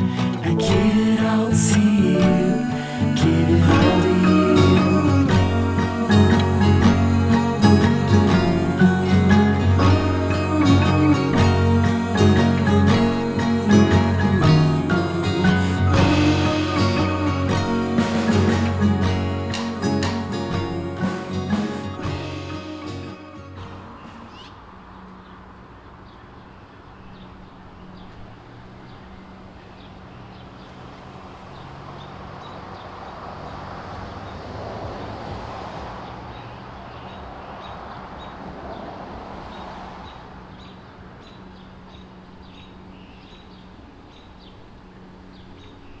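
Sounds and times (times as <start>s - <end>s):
steady low hum: 0.0s - 25.0s
broad rushing noise: 0.0s - 25.8s.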